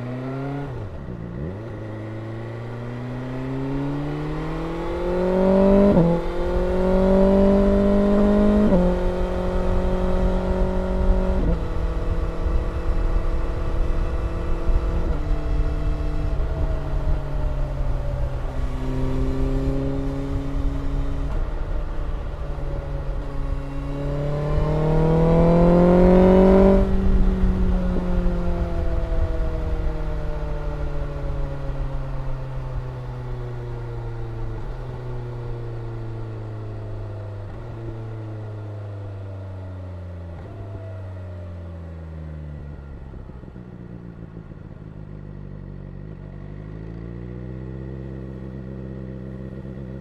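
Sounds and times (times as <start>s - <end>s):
low wind rumble: 0.0s - 46.5s
motorcycle engine running: 0.0s - 50.0s
motorcycle engine slowing down: 41.8s - 50.0s.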